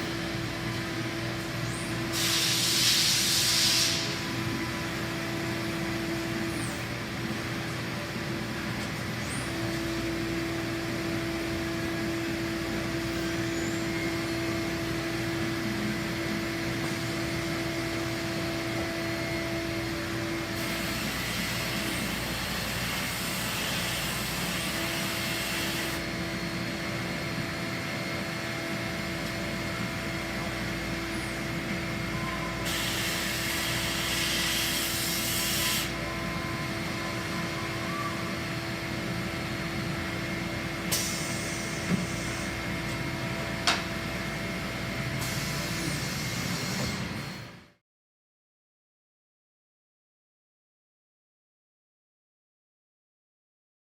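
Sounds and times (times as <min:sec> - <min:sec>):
cnc mill whining: 0:00.0 - 0:47.7
burst of hiss: 0:02.1 - 0:04.2.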